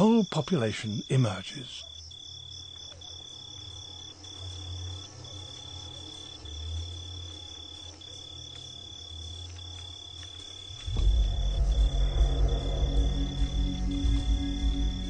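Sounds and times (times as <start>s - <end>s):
insect high trill: 0.0s - 15.0s
pulsing insect chorus: 0.0s - 15.0s
low hum: 10.7s - 15.0s.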